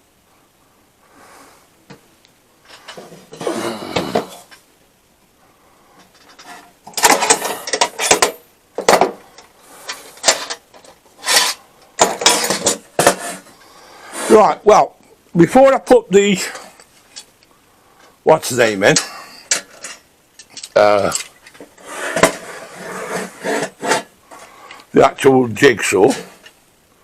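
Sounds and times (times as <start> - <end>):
tools rustling and scraping: 2.6 - 4.7, 5.9 - 14.6, 16.4 - 18.2, 18.9 - 24.9, 25.9 - 26.6
tools clunking and rattling: 2.7 - 4.6, 6.0 - 9.3, 9.9 - 13.4.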